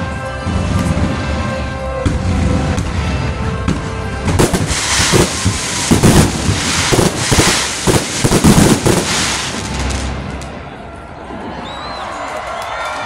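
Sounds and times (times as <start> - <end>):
firework bangs and crackling: 2.1 - 10.7.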